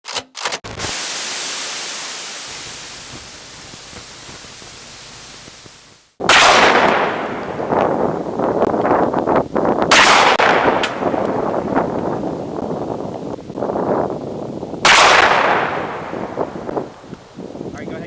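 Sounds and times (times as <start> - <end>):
hiss: 0.7 - 6.2
short crackles: 0.7 - 6.2
loud gunshot with rumbling tail: 6.2 - 7.8, 9.9 - 11.7, 14.8 - 16.6.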